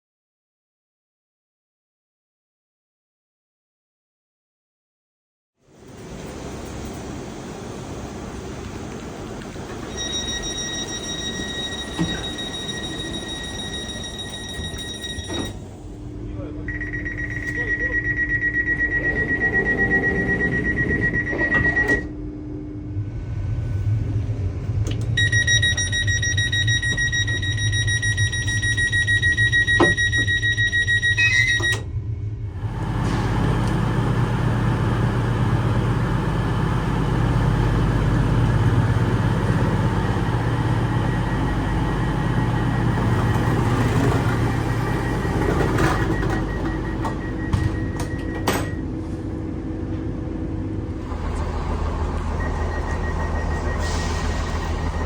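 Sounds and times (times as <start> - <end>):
steady warning tone: 9.7 - 23.1, 25.2 - 55.0
rapidly pulsing warning beep: 9.9 - 15.6, 16.7 - 22.1, 25.2 - 31.9, 35.5 - 48.9, 51.1 - 55.0
train running rumble: 32.5 - 55.0.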